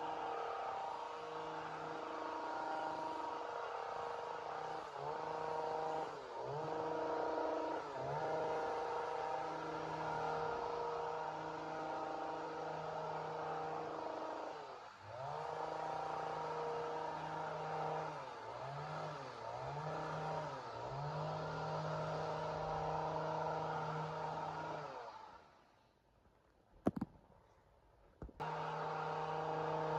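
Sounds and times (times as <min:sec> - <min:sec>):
chainsaw engine whining: 0:28.4 - 0:29.9.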